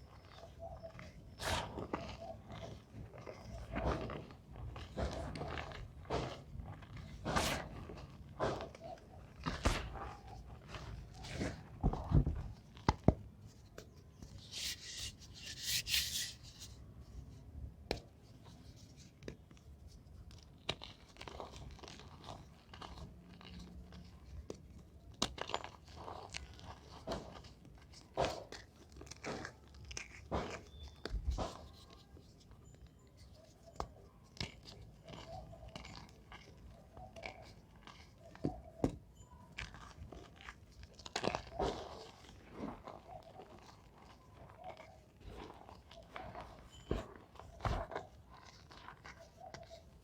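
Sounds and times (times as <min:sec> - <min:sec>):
chalk crunching: 0:01.4 - 0:11.6, 0:14.3 - 0:16.8, 0:39.6 - 0:50.0.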